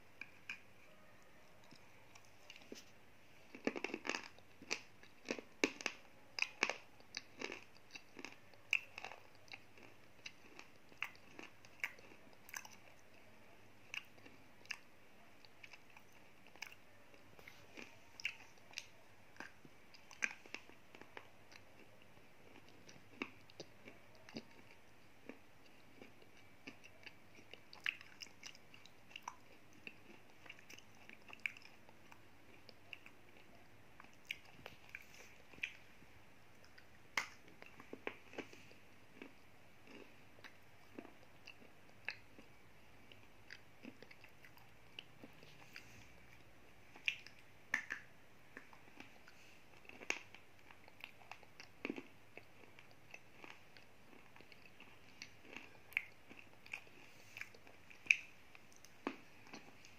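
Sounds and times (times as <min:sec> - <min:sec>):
gritty crunches of chewing: 0:03.5 - 0:14.9, 0:36.6 - 0:42.5, 0:46.9 - 0:59.9.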